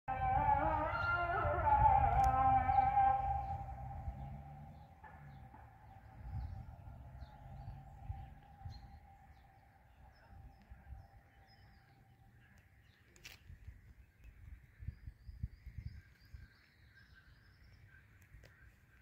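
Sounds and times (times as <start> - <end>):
background music: 0.1 - 4.8
low outdoor rumble: 0.1 - 12.8
small birds chirping faintly: 2.6 - 19.0.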